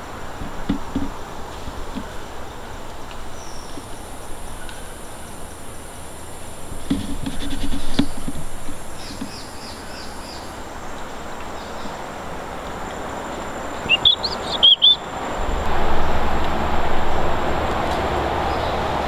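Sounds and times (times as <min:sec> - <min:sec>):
forest background noise: 0:00.0 - 0:19.0
steady rushing noise: 0:00.0 - 0:19.0
high bird chirps: 0:13.8 - 0:15.2.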